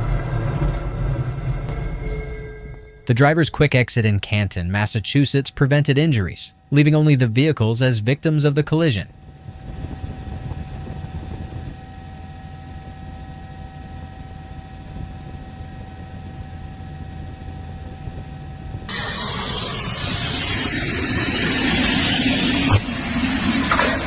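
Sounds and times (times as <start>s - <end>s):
low vehicle rumble: 0.0s - 3.0s, 18.7s - 24.0s
loud hissing noise: 18.9s - 24.0s.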